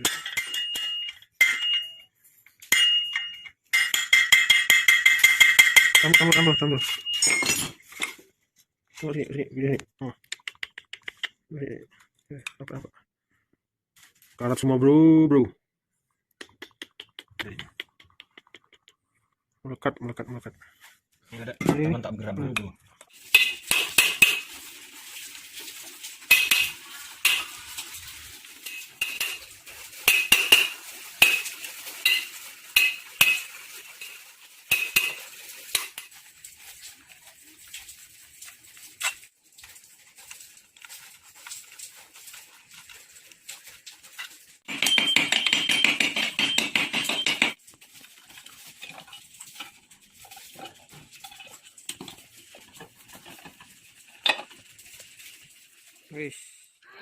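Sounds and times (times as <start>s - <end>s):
metal tools clinking on steel: 0.0s - 8.3s, 44.7s - 47.6s.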